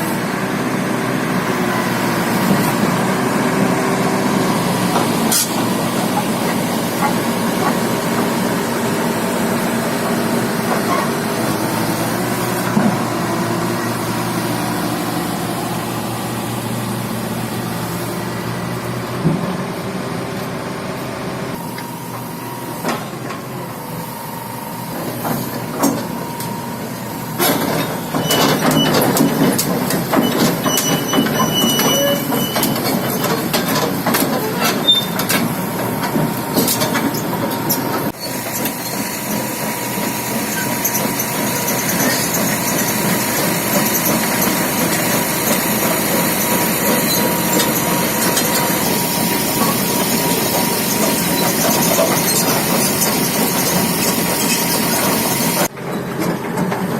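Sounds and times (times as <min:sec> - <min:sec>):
excavator engine and hydraulics: 0:00.0 - 0:56.9
knocks and clanks: 0:27.4 - 0:38.1.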